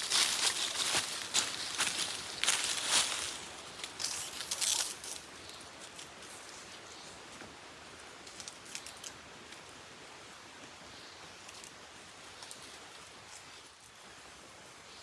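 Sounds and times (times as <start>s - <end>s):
small clicks and rustles: 8.2s - 9.7s, 11.4s - 14.0s.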